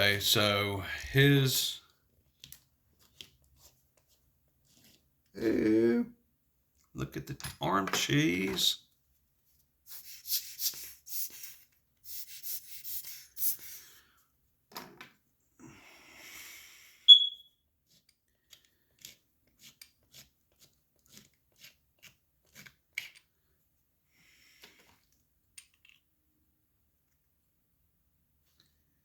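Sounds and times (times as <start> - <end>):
scraping on a watch: 3.0 - 5.1
sharp high squeak: 17.1 - 17.6.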